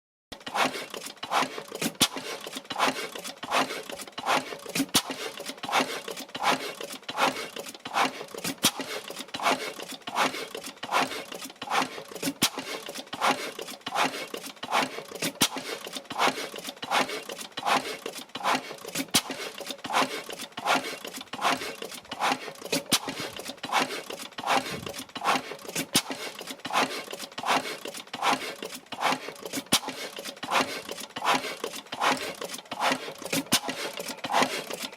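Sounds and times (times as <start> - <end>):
oil engine beating steadily: 16.2 - 26.2.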